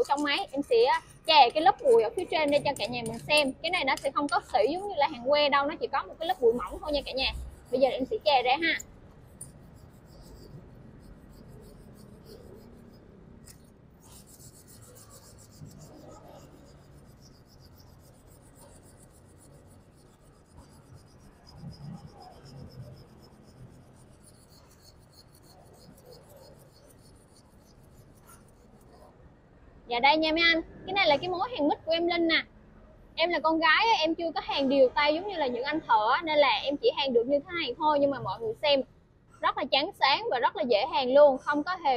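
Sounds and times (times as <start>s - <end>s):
wire brush scrubbing steel: 0.0s - 5.0s, 6.2s - 29.1s.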